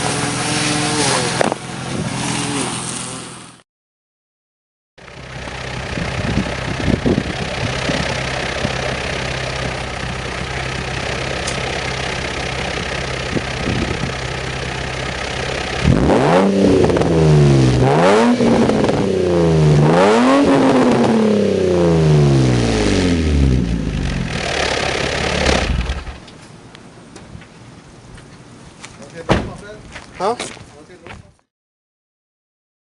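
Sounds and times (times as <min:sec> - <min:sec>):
car engine idling and revving: 0:00.0 - 0:03.6, 0:05.0 - 0:26.6.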